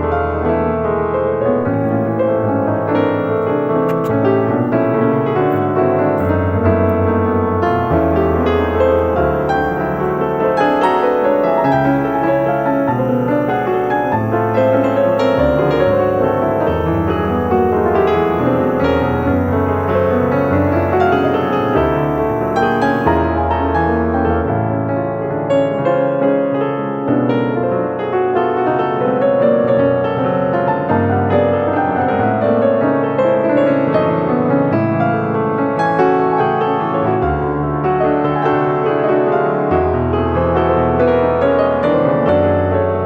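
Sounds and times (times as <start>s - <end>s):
piano music: 0.0s - 26.4s
sustained bass line: 1.6s - 23.4s.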